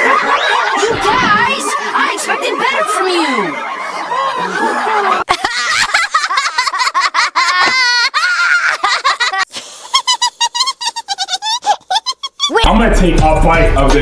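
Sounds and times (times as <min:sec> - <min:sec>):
cartoon voices laughing: 0:02.4 - 0:12.7.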